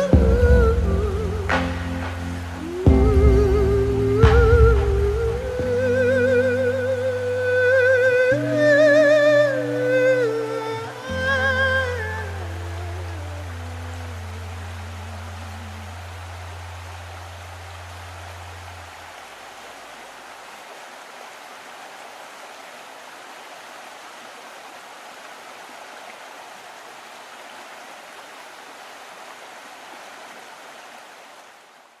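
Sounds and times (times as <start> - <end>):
low held musical note: 0.0 - 17.1
rushing water: 0.0 - 32.0.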